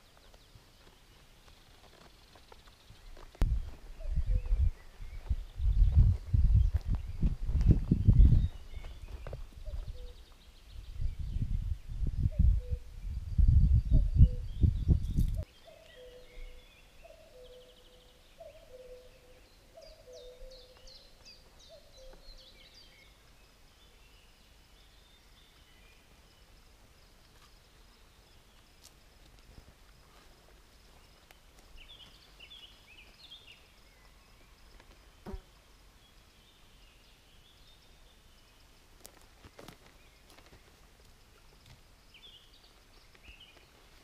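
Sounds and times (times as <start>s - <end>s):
small birds twittering: 0.0s - 12.9s, 13.7s - 28.7s, 30.9s - 35.4s, 41.6s - 44.0s
repeated low bird calls: 0.0s - 28.8s.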